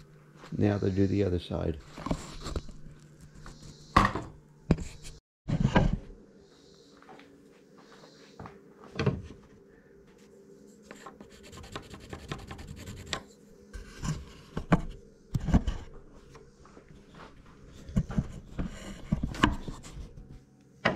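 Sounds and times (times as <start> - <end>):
rubbing and scraping wood: 1.8 - 4.0, 4.7 - 6.0, 10.2 - 16.0, 17.1 - 20.4.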